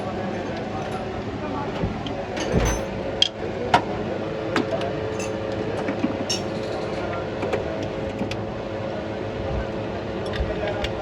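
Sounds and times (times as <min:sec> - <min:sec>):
steady mechanical hum: 0:00.0 - 0:11.0
metal hand tools clinking: 0:06.3 - 0:06.6.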